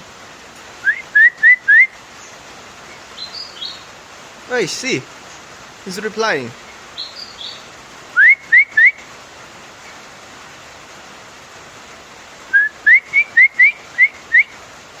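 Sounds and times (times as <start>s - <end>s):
rain hiss: 0.0s - 15.0s
bird whistling rising notes: 0.8s - 2.0s, 8.2s - 9.0s.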